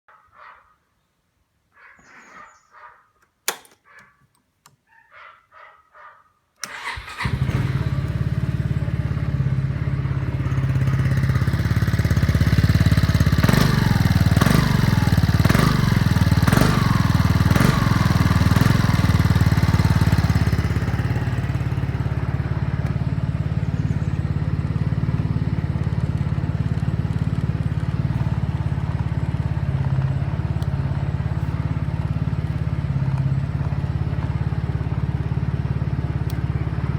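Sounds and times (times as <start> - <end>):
scooter engine starting: 3.4 - 4.1, 6.6 - 36.9
scooter engine idling: 6.6 - 36.9
scooter engine revving: 6.6 - 36.9.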